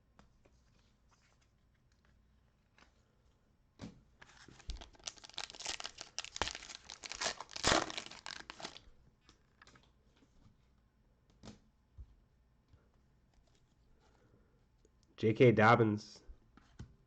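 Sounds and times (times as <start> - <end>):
plastic wrapper tearing and crinkling: 4.3 - 8.8.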